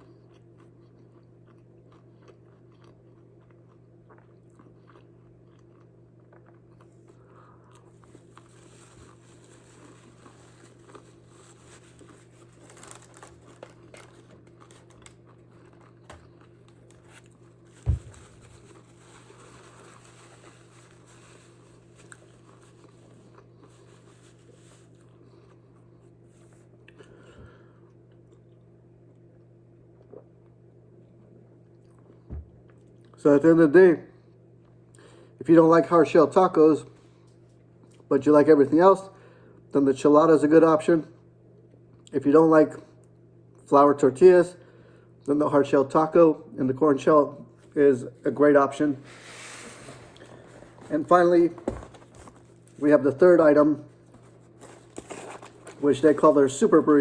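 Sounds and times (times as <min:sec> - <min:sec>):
person chewing crunchy food: 0:00.0 - 0:26.2, 0:53.9 - 0:55.9
steady low hum: 0:00.0 - 0:57.0.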